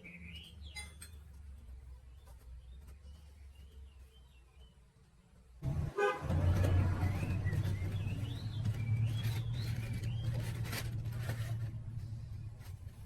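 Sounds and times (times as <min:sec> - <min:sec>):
motorbike engine starting and idling: 0:05.6 - 0:13.0.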